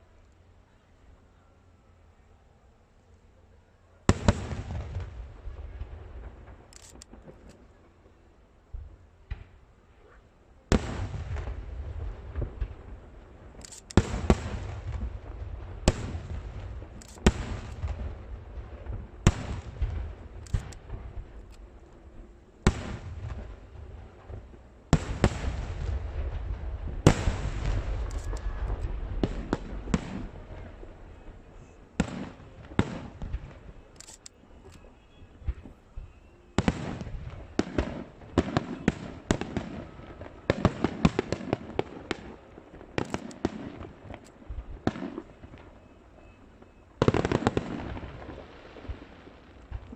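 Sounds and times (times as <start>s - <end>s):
fireworks bangs: 4.1s - 8.2s, 10.7s - 49.9s
fireworks crackling: 10.7s - 49.9s.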